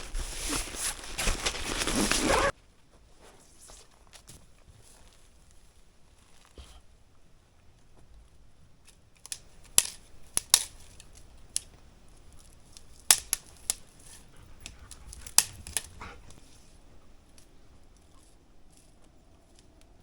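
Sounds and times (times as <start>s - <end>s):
camping gear clicks and snaps: 0.0s - 2.5s, 8.8s - 20.0s.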